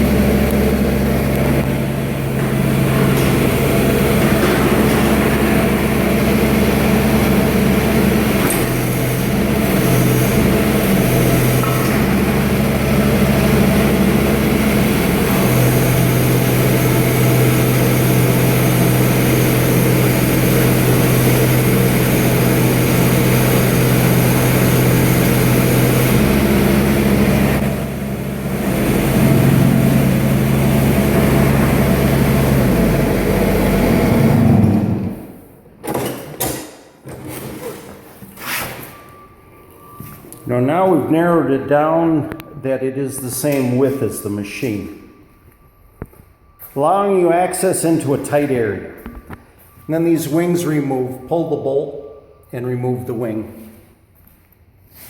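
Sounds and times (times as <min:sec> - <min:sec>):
mini excavator diesel engine: 0:00.0 - 0:35.6.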